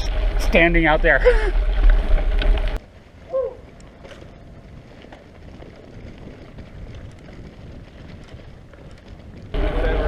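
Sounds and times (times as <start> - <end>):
bicycle tyre noise: 0.0 - 10.0
wind on microphone: 0.0 - 10.0.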